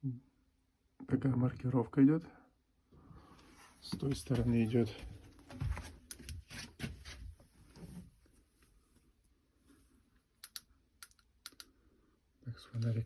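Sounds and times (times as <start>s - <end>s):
handling knocks and rustling: 3.8s - 8.2s
sharp clicks: 10.4s - 11.7s.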